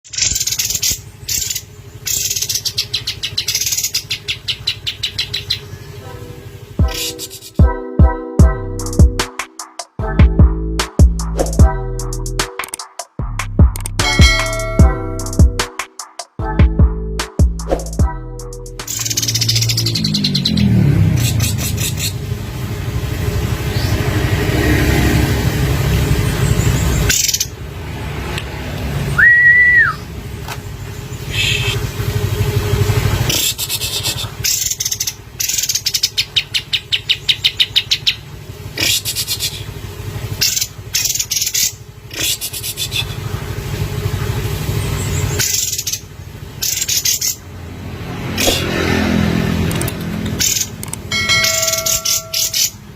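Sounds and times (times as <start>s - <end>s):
bird singing buzzy rattling trills: 0.0s - 10.2s, 11.2s - 24.8s, 25.7s - 27.8s, 29.9s - 52.9s
whistled note: 29.2s - 30.0s.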